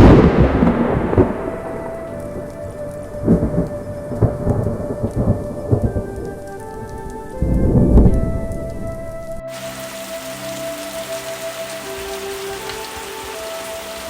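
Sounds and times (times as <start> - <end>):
thunder crack and rumbles: 0.0 - 9.1
steady rain: 0.0 - 14.0.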